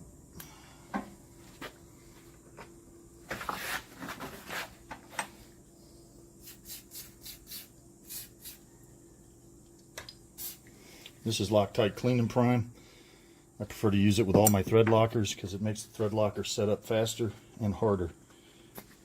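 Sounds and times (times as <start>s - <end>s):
faint steady hum: 0.0s - 19.0s
short hissing bursts: 6.4s - 8.7s, 10.3s - 11.2s
tools clicking and tapping: 14.3s - 15.0s.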